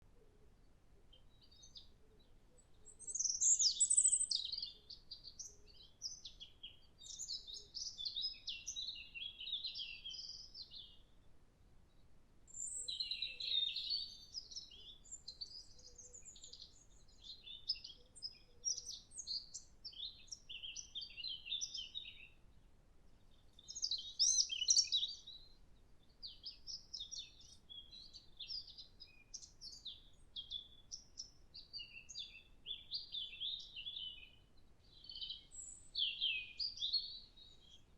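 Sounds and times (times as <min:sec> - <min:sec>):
robin singing warbling phrases: 0:03.0 - 0:10.9, 0:23.6 - 0:25.3, 0:31.6 - 0:37.8.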